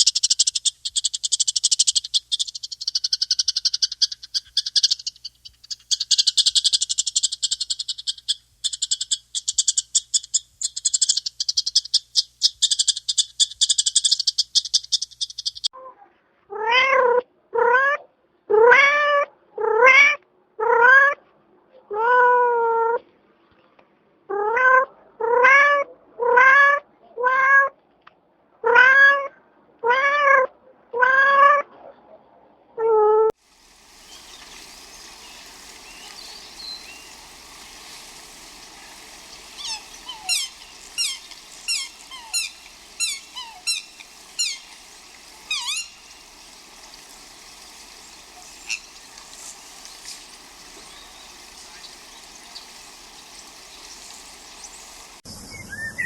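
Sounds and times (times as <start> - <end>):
songbird chirping: 0.0 - 15.7, 33.9 - 56.0.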